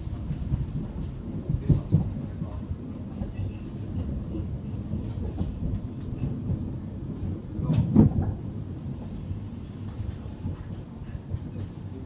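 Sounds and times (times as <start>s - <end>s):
low rumble of wheels on track: 0.0s - 12.0s.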